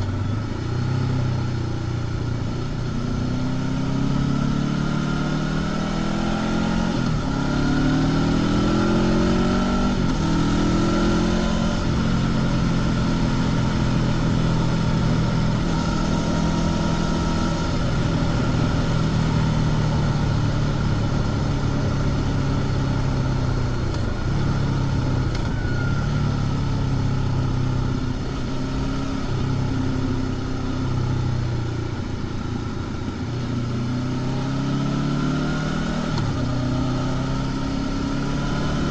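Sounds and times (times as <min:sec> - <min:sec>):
motorcycle engine: 0:00.0 - 0:38.9
wind and road noise: 0:00.0 - 0:38.9.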